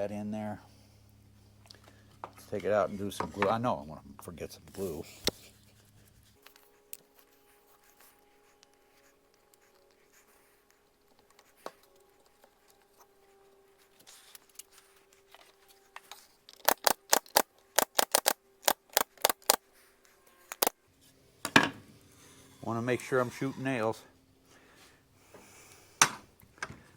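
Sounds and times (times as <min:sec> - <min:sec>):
sharp clicks or knocks: 0:16.6 - 0:19.6.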